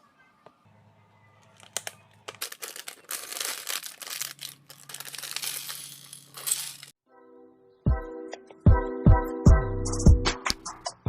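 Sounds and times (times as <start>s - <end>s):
plastic packaging crinkling: 1.4s - 6.9s.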